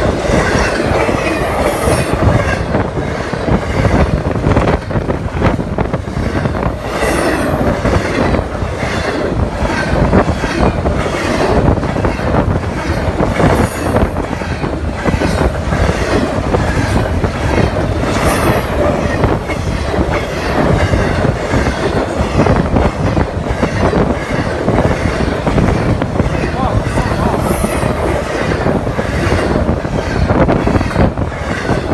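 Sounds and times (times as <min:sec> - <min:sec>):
train wheels rumbling on rails: 0:00.0 - 0:31.9
high wheel squeals: 0:00.4 - 0:02.6, 0:06.2 - 0:08.2, 0:12.3 - 0:14.5, 0:23.7 - 0:31.9.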